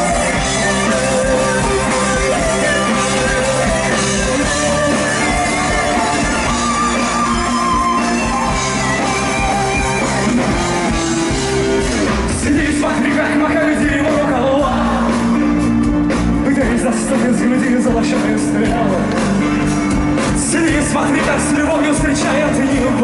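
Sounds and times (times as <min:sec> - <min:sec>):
person singing: 0:00.0 - 0:15.6, 0:20.3 - 0:23.0
rock band playing live: 0:00.0 - 0:23.0.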